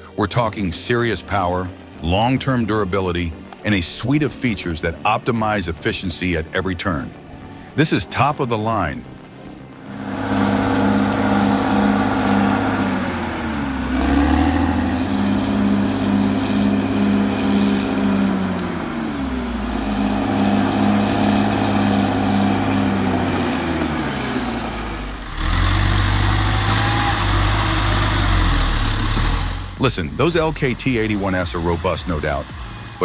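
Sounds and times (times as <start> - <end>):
diesel engine running under load: 9.7 - 33.0.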